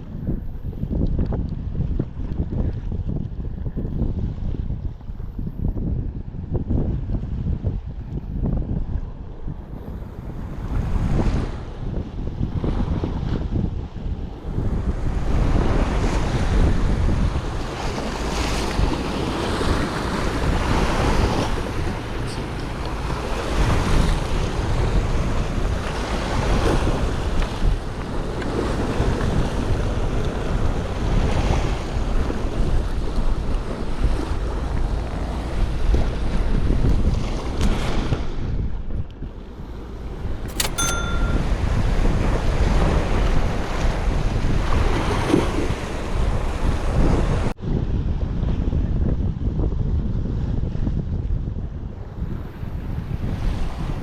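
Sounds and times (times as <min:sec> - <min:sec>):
wind buffeting microphone: 0:00.0 - 0:54.0
brief high tone: 0:40.5 - 0:41.6.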